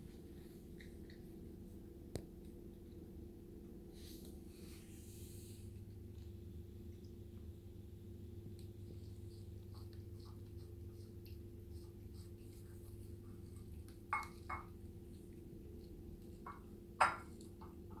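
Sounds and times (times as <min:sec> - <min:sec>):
cat chewing and licking: 0:00.0 - 0:18.0
steady low hum: 0:00.0 - 0:18.0.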